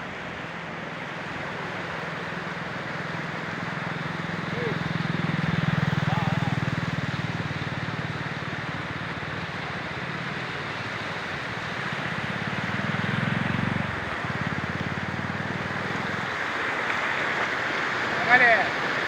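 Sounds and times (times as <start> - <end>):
motor engine running: 3.4 - 9.6.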